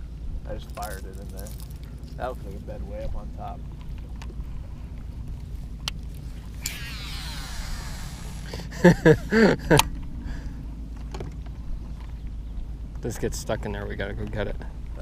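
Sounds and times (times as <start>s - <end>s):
steady low rumble: 0.0s - 15.0s
fishing reel spool whirring: 6.1s - 8.9s.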